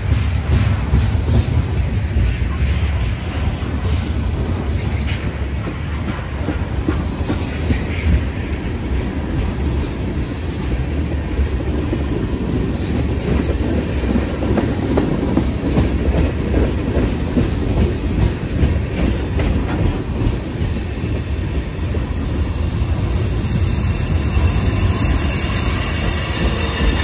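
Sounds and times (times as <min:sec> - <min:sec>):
wheels clicking over rail joints: 0:00.0 - 0:10.2
train cars rumbling: 0:00.0 - 0:27.0.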